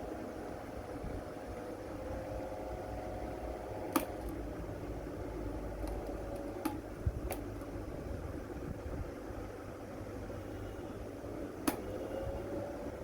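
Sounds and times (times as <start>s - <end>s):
fan motor humming: 0.0s - 13.0s
sharp click: 11.6s - 11.9s.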